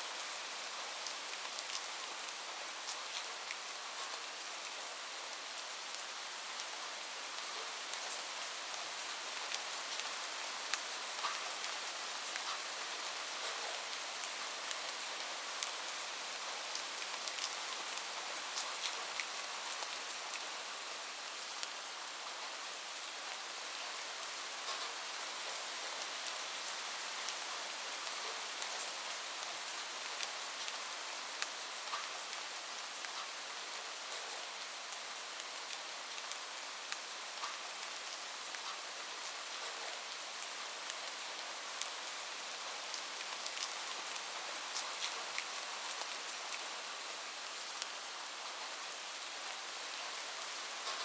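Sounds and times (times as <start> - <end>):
rain on a roof: 0.0 - 51.0.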